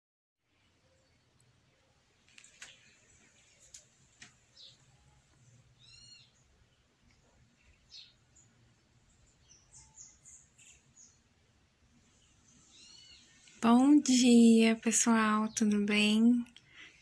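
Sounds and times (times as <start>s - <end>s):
faint high bird chirps: 4.5s - 11.3s, 12.1s - 16.9s.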